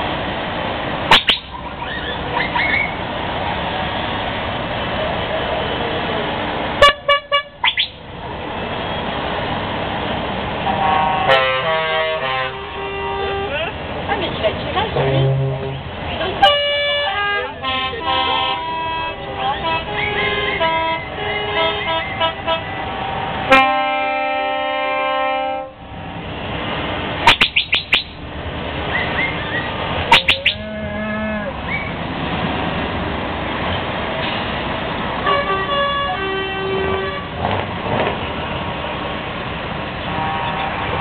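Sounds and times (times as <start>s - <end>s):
diesel engines running: 0.0s - 41.0s
truck air horn blasts: 6.8s - 7.8s, 10.6s - 13.7s, 15.0s - 25.8s, 35.2s - 37.4s, 40.1s - 41.0s.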